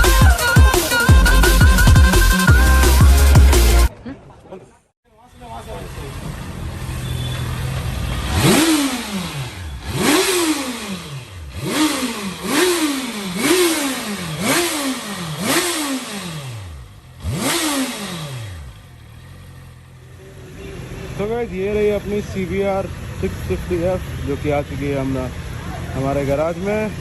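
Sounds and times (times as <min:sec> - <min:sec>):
motorcycle engine idling and revving: 0:05.2 - 0:27.0.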